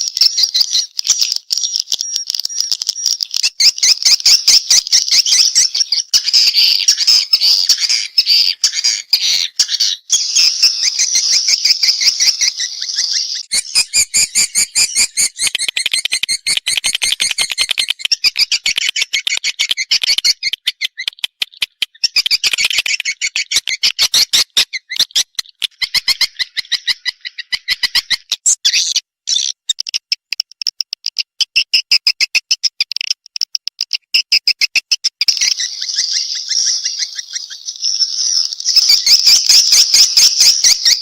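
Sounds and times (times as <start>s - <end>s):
fast run of clicks: 0.0s - 4.6s, 15.4s - 24.3s, 29.5s - 31.4s, 32.2s - 35.4s
buzzy bird twittering: 0.0s - 33.0s, 33.8s - 41.0s.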